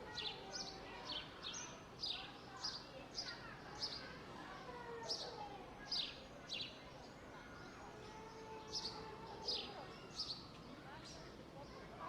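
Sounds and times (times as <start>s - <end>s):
faint distant voices: 0.0s - 12.0s.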